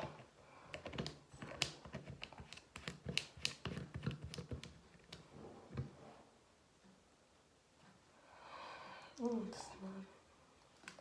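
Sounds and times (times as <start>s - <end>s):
plastic items clicking and tapping: 0.7s - 5.9s.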